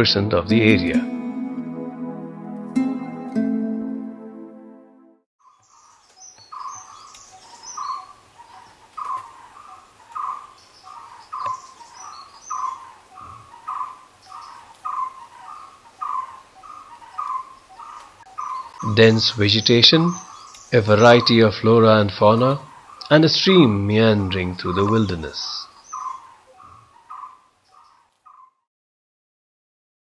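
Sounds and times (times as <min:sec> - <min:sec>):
higher chirps of other birds: 0:05.4 - 0:21.5, 0:24.2 - 0:28.6.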